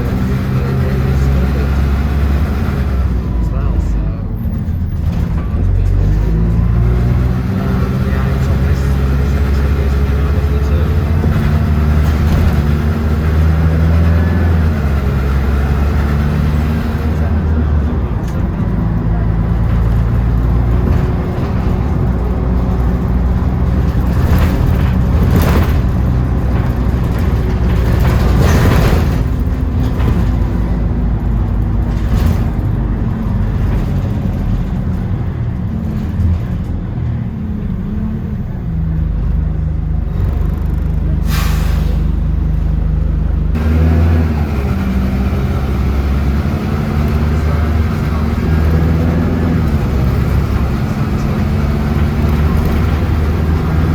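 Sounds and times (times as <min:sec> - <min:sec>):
bus engine humming: 0:00.0 - 0:53.9
air brake hisses: 0:41.2 - 0:42.2.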